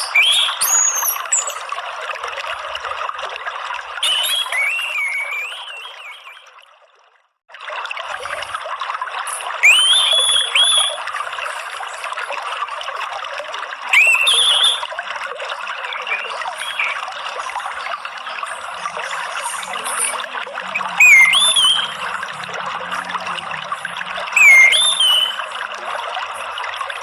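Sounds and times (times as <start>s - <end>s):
songbird whistling: 0.0s - 1.6s, 4.0s - 6.5s, 9.6s - 11.0s, 13.9s - 14.9s, 16.0s - 17.0s, 20.0s - 22.2s, 24.3s - 25.4s
water trickling: 0.0s - 27.0s.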